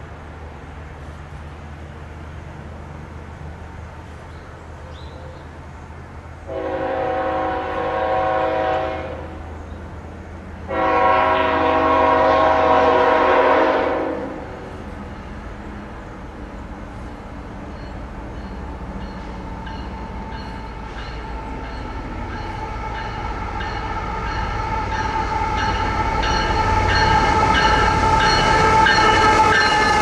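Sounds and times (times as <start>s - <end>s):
diesel locomotive engine drone: 0.0s - 30.0s
locomotive air horn blasts: 6.5s - 9.4s, 10.7s - 14.6s, 22.1s - 30.0s.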